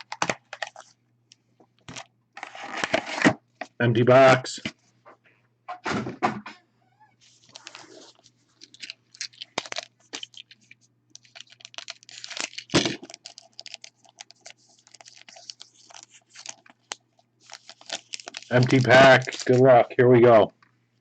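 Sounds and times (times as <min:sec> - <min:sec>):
wrappers crinkling and tearing: 0:00.0 - 0:01.0, 0:01.8 - 0:03.4, 0:07.3 - 0:20.4.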